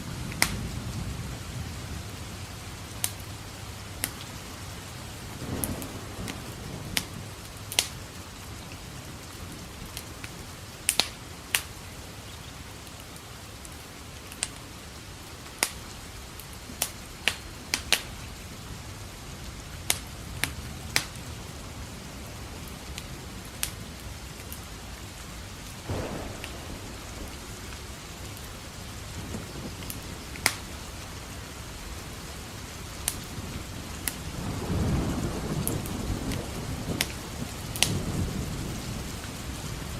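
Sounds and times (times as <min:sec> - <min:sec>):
low thunder rumbling: 0:00.0 - 0:10.0, 0:18.8 - 0:39.9
wood fire crackling: 0:00.0 - 0:39.6
steady rain: 0:00.0 - 0:39.9.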